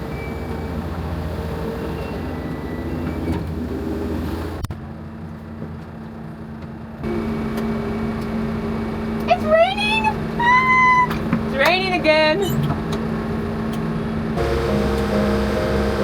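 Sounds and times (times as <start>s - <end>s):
vehicle engine running: 4.8s - 16.0s
loud steady drone: 7.0s - 9.8s, 14.4s - 16.0s.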